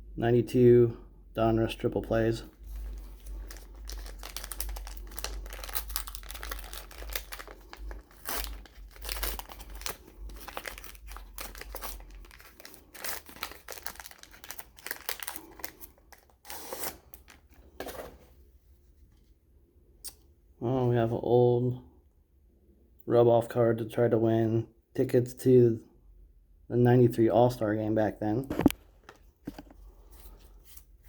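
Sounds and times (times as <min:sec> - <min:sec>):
wrapper tearing and crinkling: 0:02.7 - 0:17.5.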